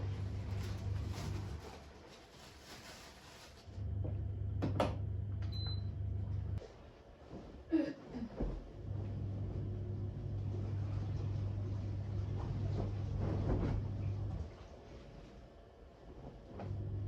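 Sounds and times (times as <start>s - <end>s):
electric appliance humming: 3.7s - 6.6s, 8.7s - 14.5s, 16.5s - 17.0s.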